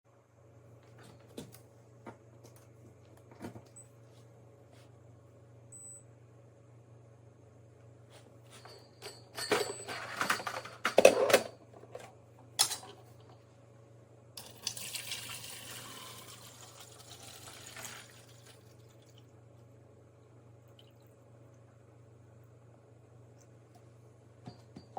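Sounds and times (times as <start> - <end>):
hard parts clattering: 8.7 - 12.9.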